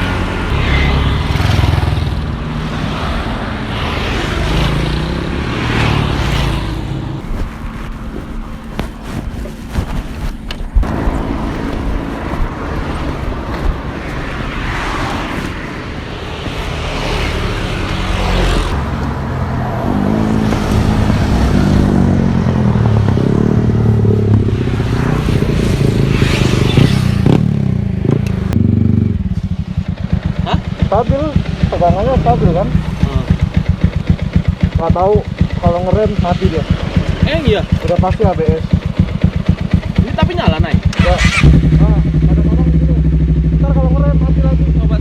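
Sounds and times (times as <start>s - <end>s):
wind and road noise: 0.0s - 45.0s
motorcycle engine running: 4.4s - 14.6s, 20.0s - 45.0s.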